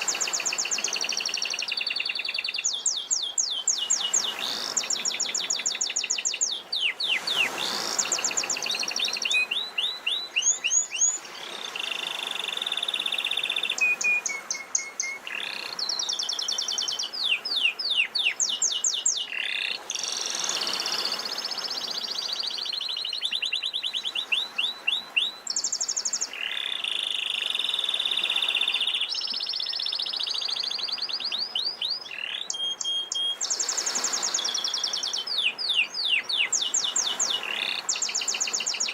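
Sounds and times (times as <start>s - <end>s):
sea waves washing: 0.0s - 22.7s, 32.4s - 38.9s
canary singing trills: 0.0s - 38.9s.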